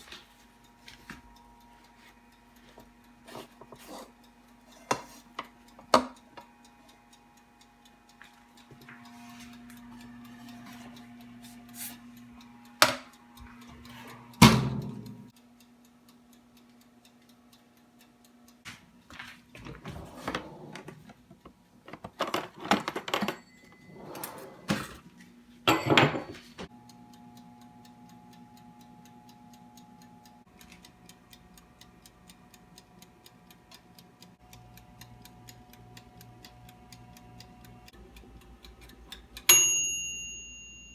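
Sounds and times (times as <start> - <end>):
kitchen appliance humming: 0.0 - 15.3, 19.5 - 40.9
steady ticking: 0.6 - 18.6, 26.7 - 40.9.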